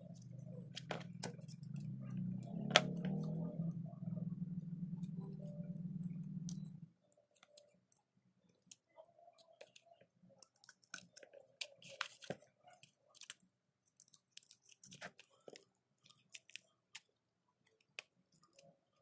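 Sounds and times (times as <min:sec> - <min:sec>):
steady low hum: 0:00.0 - 0:07.0
small irregular clicks and taps: 0:06.0 - 0:19.0.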